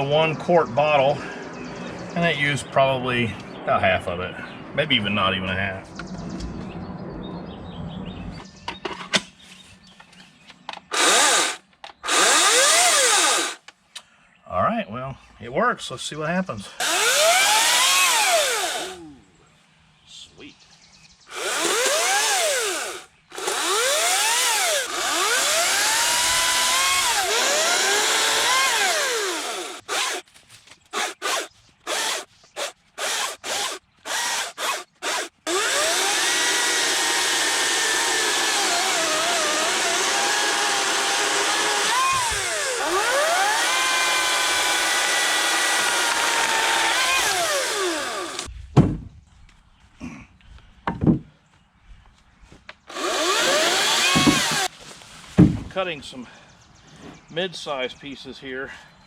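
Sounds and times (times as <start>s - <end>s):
electric chainsaw cutting wood: 10.9s - 13.6s, 16.8s - 19.0s, 21.3s - 30.2s, 30.9s - 48.5s, 52.9s - 54.7s.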